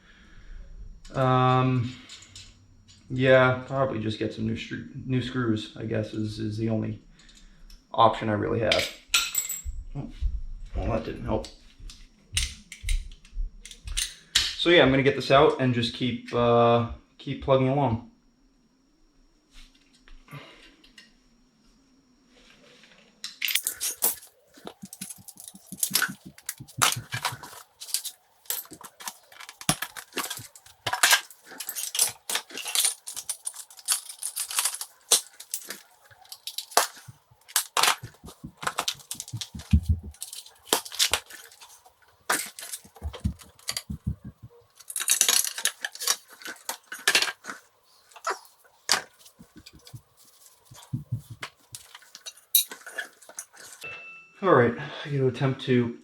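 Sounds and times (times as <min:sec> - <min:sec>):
metal tools clinking and clattering: 0:23.4 - 0:47.5, 0:48.2 - 0:50.0, 0:50.8 - 0:53.8
dull thumps: 0:38.0 - 0:40.2, 0:42.8 - 0:44.7, 0:49.4 - 0:51.6.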